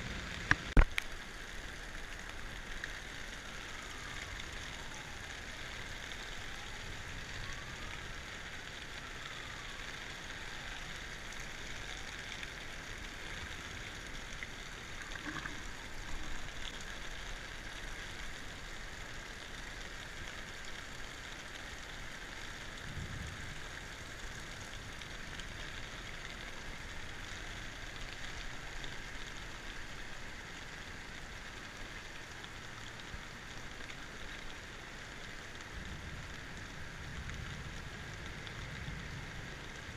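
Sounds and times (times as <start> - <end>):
floodwater rushing: 0.0 - 8.2, 8.9 - 22.8.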